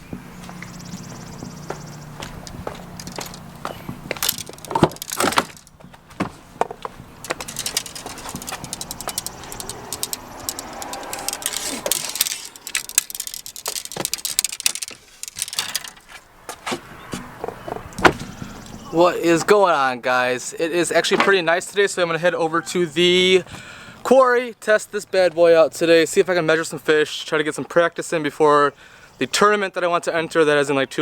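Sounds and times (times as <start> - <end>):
objects clicking and rattling: 3.0 - 3.5, 4.1 - 5.8, 7.2 - 16.2.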